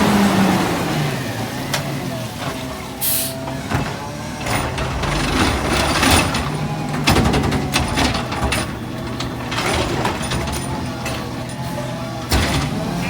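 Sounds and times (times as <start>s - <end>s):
garbage truck diesel engine: 0.0s - 13.0s
metallic clanks and rattles: 3.7s - 13.0s.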